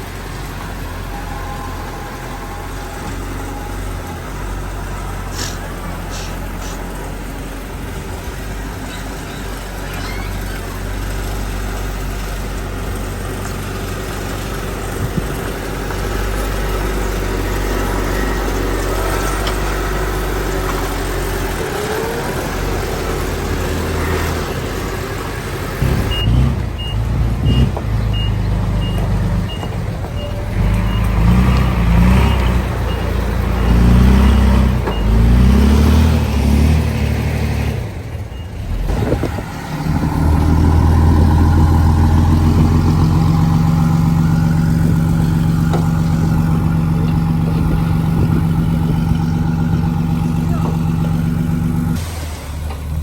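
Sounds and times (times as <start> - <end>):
heavy diesel machinery engine: 0.0 - 53.0
reversing alarm beeping: 0.8 - 4.7, 25.8 - 35.7.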